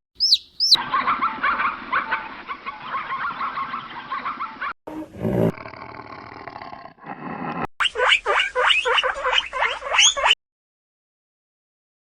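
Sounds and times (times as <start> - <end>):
swooping repeated animal calls: 0.2 - 1.0, 7.8 - 10.4.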